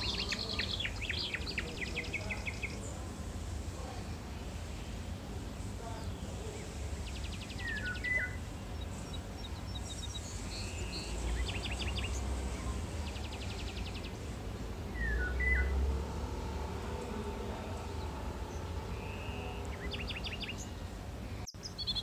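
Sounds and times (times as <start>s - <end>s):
bird song trills and whistles: 0.0s - 2.8s, 7.0s - 14.2s, 14.9s - 15.9s, 17.9s - 22.0s
bird chirps: 0.0s - 2.9s, 6.0s - 22.0s
low steady rumble: 0.0s - 21.5s.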